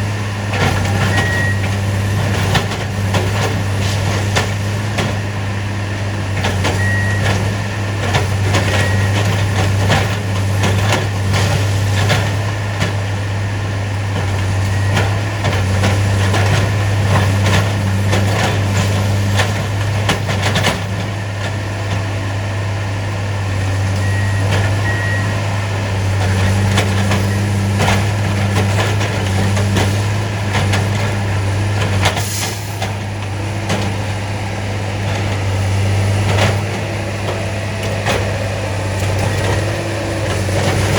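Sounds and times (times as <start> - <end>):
diesel engines running: 0.0 - 40.9
short beeping alarm: 1.0 - 1.7, 6.7 - 7.8, 24.0 - 25.7.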